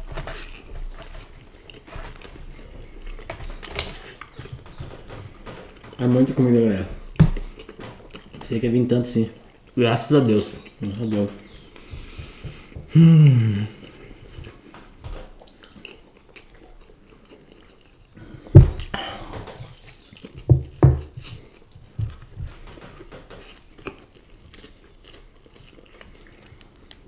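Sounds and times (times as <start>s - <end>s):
chewing and biting: 0.0s - 6.2s, 7.0s - 8.5s, 9.3s - 27.0s
low thumps: 18.5s - 19.7s.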